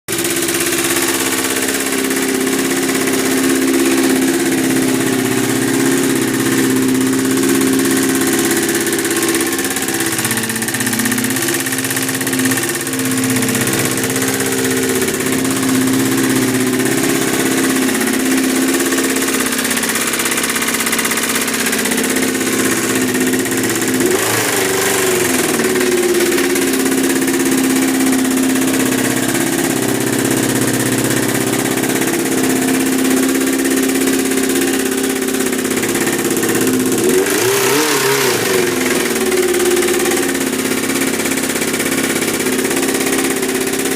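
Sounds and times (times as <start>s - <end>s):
engine revs blipped: 0.1s - 43.9s
motorcycle engine idling: 0.1s - 43.9s.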